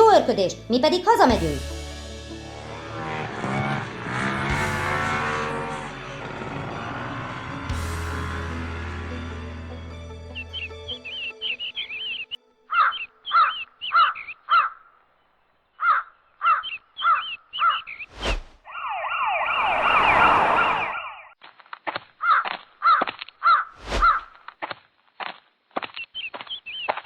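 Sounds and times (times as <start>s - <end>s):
ambulance siren wailing: 2.5s - 12.4s, 18.7s - 21.2s
crows cawing: 12.7s - 14.9s, 15.8s - 17.8s, 22.2s - 24.2s.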